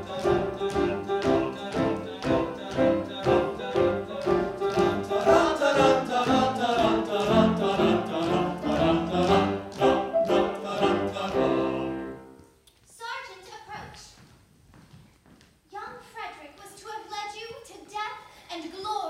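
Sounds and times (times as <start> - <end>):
operatic singing: 0.0 - 12.4
instrumental accompaniment: 0.0 - 12.5.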